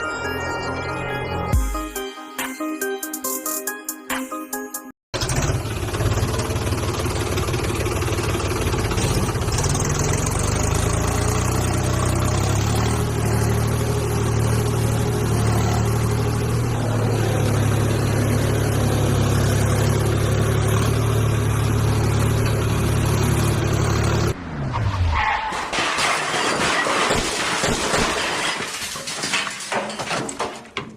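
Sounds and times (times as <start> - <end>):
small tractor engine running: 5.2 - 24.4.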